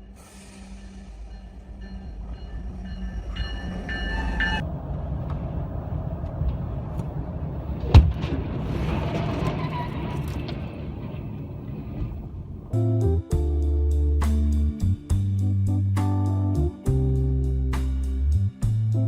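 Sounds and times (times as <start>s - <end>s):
train rumbling past: 0.0s - 12.8s
loud bang: 4.6s - 12.8s.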